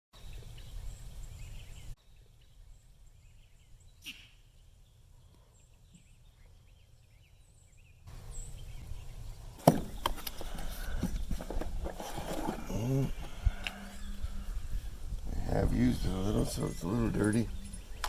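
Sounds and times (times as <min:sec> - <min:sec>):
faint bird chirps: 0:00.2 - 0:09.6.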